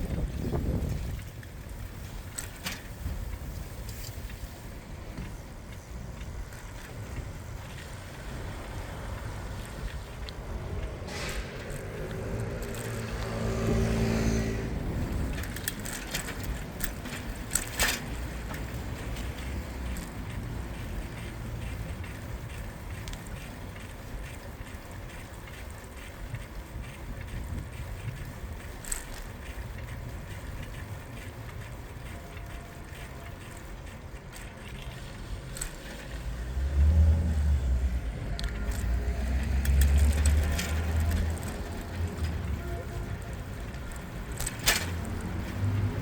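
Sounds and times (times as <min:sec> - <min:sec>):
bicycle clicks and rattles: 0:00.0 - 0:46.0
traffic and road noise: 0:00.0 - 0:46.0
vehicle passing close: 0:07.7 - 0:22.9, 0:34.7 - 0:46.0.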